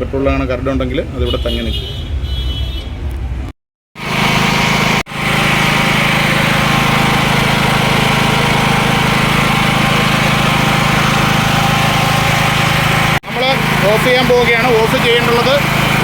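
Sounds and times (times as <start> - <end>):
generator engine running: 4.0 - 16.0.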